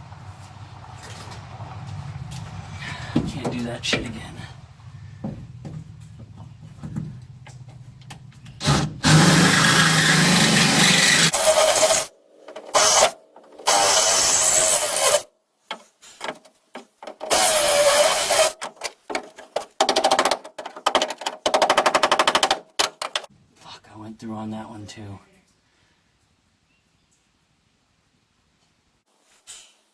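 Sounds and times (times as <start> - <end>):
power drill drilling sheet steel: 8.6 - 12.1, 12.7 - 15.3, 17.3 - 18.6
cutter bit chattering: 8.6 - 15.3, 17.2 - 18.6.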